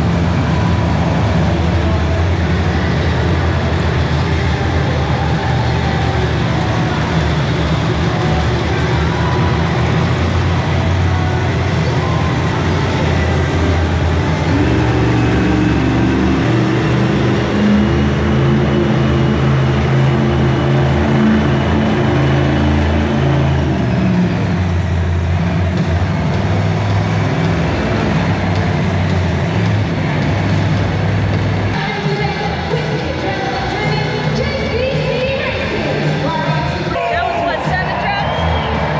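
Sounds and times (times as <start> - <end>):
monster truck engines revving: 0.0 - 38.9.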